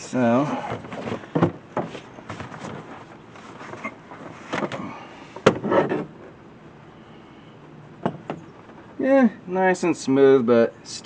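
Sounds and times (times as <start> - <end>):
plastic parts clattering and scraping: 0.6 - 6.1.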